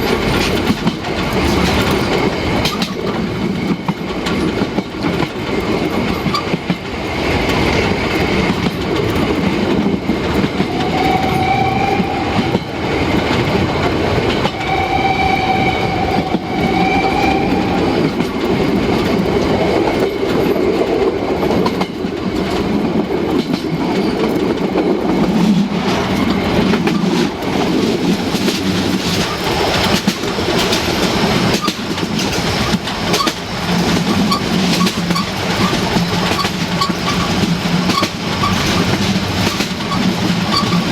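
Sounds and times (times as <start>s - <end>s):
steam train wheels clattering: 0.0s - 40.9s
steam locomotive whistle: 10.7s - 12.6s, 14.5s - 17.8s.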